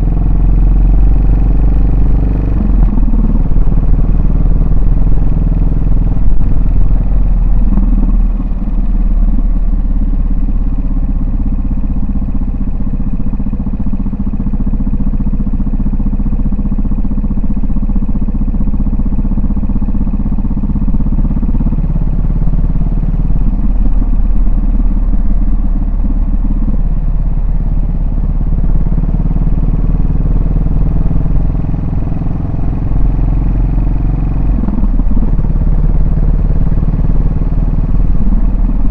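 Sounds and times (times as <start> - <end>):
motorcycle engine revving: 0.0 - 10.1, 19.1 - 38.9.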